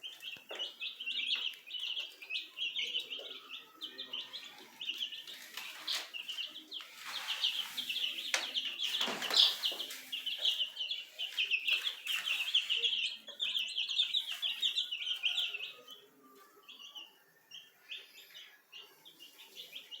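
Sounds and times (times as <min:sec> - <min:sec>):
baby chicks peeping: 0:00.0 - 0:20.0
rustling scrapes: 0:05.2 - 0:13.1.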